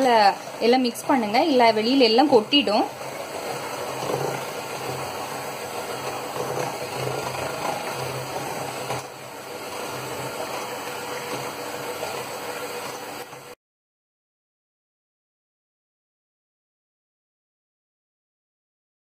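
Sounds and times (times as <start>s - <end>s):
electric mixer whirring: 0.0s - 13.6s.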